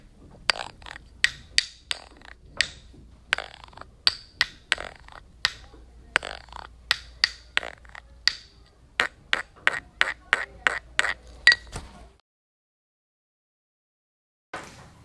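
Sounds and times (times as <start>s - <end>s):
sharp percussive clicks: 0.0s - 11.7s.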